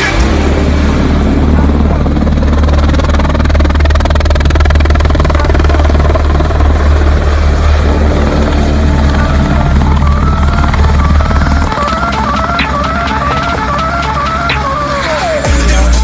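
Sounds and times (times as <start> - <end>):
electronic music: 0.0 - 2.4, 9.0 - 16.0
helicopter rotor and engine: 0.0 - 15.9.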